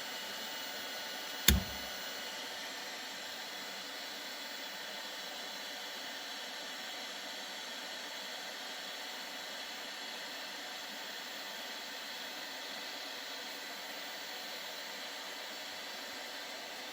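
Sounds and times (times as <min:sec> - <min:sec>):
printer fans hissing: 0:01.5 - 0:01.9.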